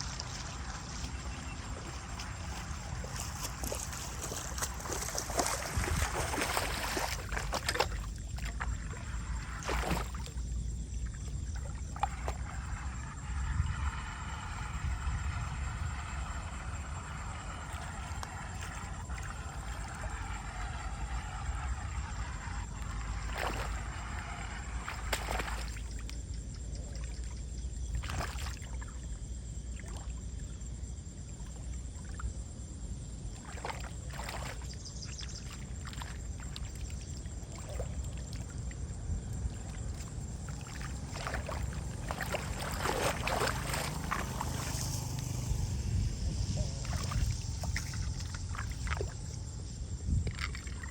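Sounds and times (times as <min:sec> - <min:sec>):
steady low rumble: 0:00.0 - 0:28.1, 0:36.2 - 0:50.9
water sloshing and trickling: 0:00.0 - 0:50.9.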